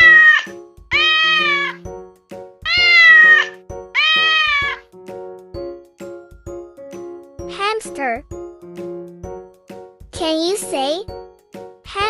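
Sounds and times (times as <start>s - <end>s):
cat meowing: 0.0s - 1.9s, 2.7s - 4.9s.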